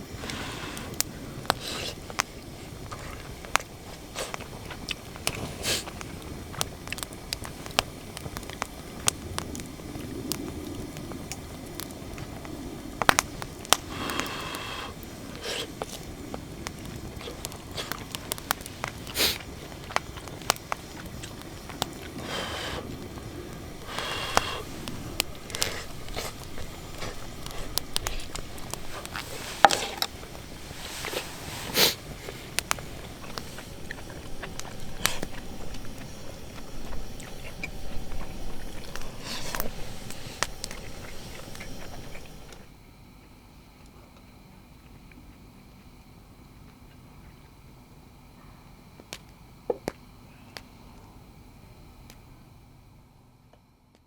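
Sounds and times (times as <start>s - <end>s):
campfire crackling and popping: 0.0s - 42.7s.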